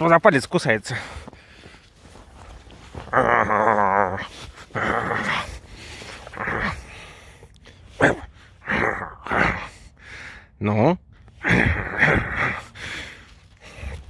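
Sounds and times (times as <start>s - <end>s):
fox rough calls: 3.0s - 9.9s, 11.3s - 14.0s.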